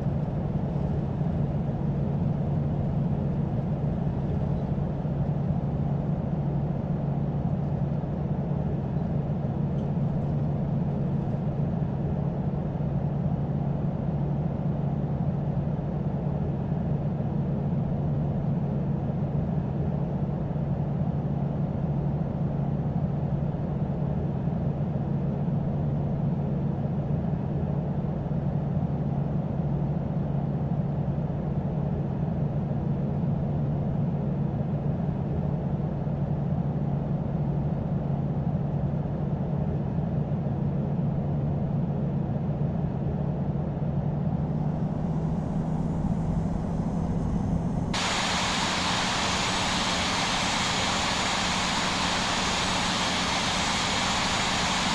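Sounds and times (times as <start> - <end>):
airplane cabin engine drone: 44.1 - 54.9.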